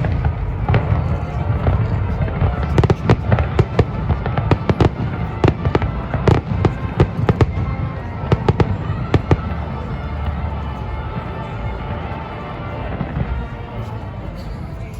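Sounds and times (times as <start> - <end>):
fireworks bangs and crackles: 0.0 - 14.9.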